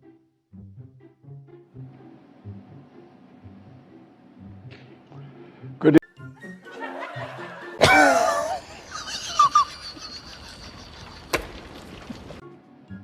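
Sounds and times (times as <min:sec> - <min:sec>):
background music: 0:00.0 - 0:10.6, 0:12.4 - 0:13.0
loud burst of laughter: 0:06.6 - 0:11.7.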